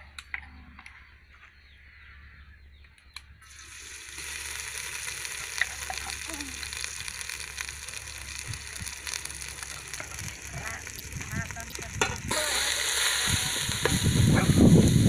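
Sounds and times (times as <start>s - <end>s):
paste sizzling in a pot: 3.4s - 15.0s.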